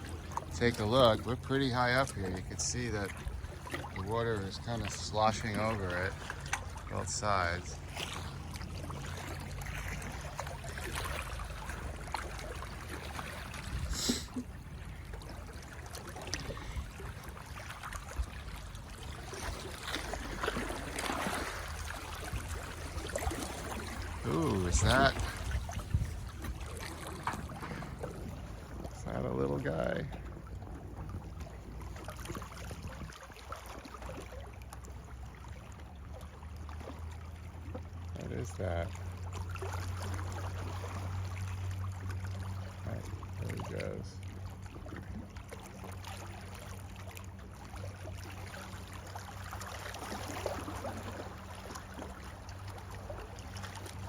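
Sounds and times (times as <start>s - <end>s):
floodwater sloshing and splashing: 0.0s - 54.0s
steady low rumble: 22.0s - 32.0s.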